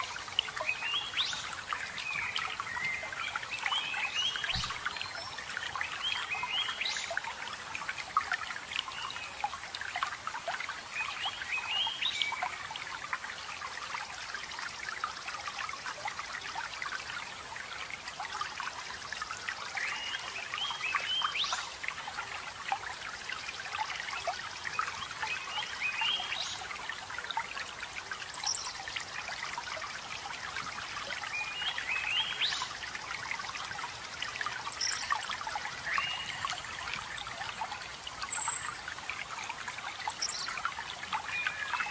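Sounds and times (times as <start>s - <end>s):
water trickling and splashing: 0.0s - 41.9s.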